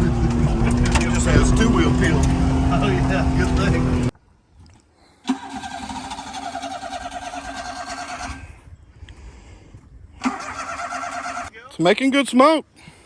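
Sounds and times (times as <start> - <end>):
small truck engine running: 0.0 - 4.1.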